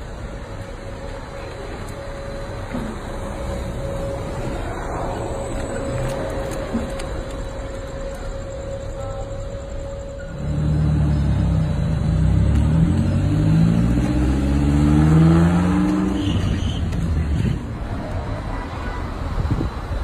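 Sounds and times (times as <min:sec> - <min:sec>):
car engine accelerating: 0:10.3 - 0:17.6.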